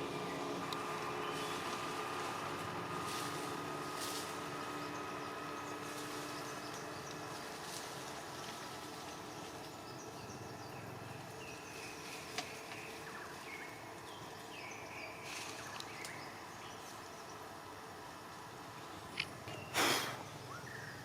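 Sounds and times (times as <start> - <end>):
insect hum: 0.0 - 21.0.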